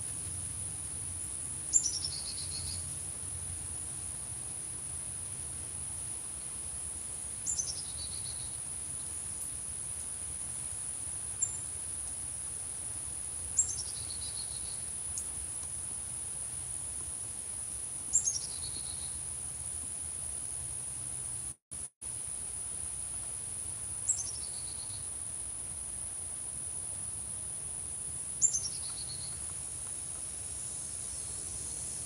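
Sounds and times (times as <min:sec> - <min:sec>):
songbird calls: 0:01.7 - 0:02.9, 0:07.4 - 0:08.6, 0:11.4 - 0:11.7, 0:13.6 - 0:15.3, 0:18.1 - 0:19.2, 0:24.1 - 0:25.1, 0:28.4 - 0:29.6
high insect trill: 0:17.7 - 0:32.0.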